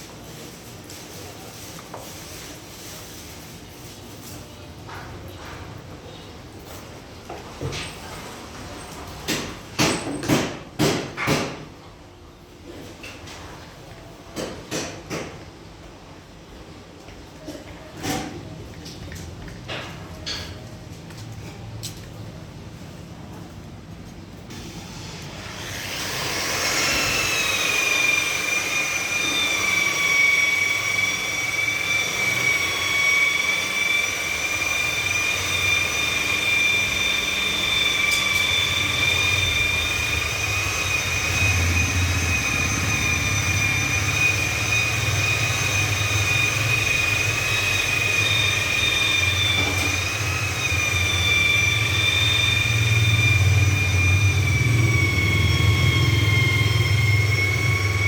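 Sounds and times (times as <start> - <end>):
power tool whining: 24.6 - 58.0.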